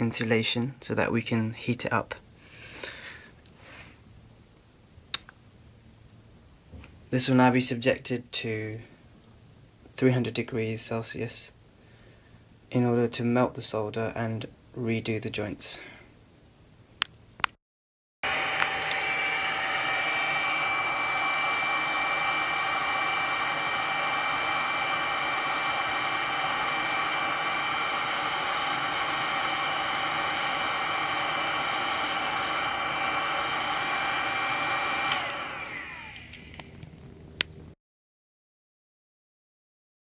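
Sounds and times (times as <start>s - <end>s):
heat gun blowing with high whine: 18.2s - 36.8s
fan winding down: 18.2s - 37.2s.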